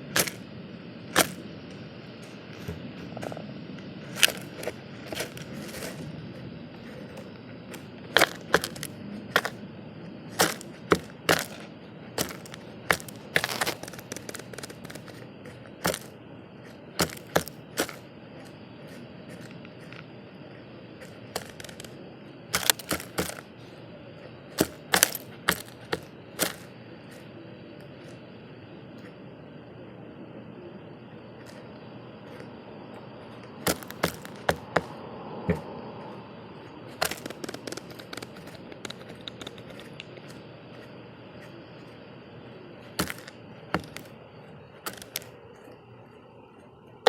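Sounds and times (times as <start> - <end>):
birds tapping on a feeder: 10.3 - 16.2, 16.9 - 18.0, 21.3 - 23.5, 24.6 - 26.6, 33.5 - 35.8, 37.0 - 40.3, 43.0 - 44.1.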